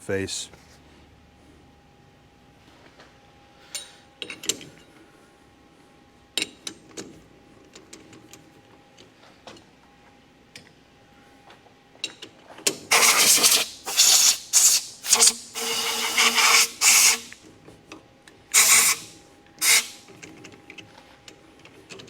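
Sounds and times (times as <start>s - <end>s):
compressed air blasts hissing: 12.9s - 17.4s, 18.5s - 20.0s.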